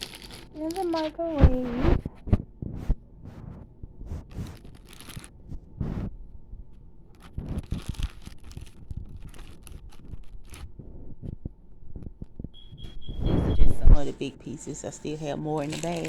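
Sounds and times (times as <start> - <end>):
bag crinkling and rustling: 0.0 - 1.2, 4.2 - 5.5, 7.1 - 10.9, 15.5 - 16.0.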